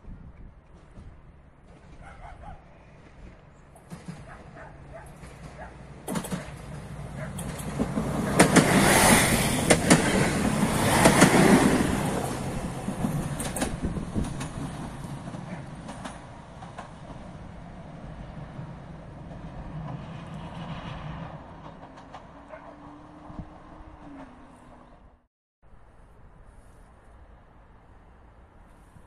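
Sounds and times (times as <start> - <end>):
diesel train passing: 0.2 - 29.0
wheels clicking over rail joints: 0.4 - 17.5, 21.4 - 22.8.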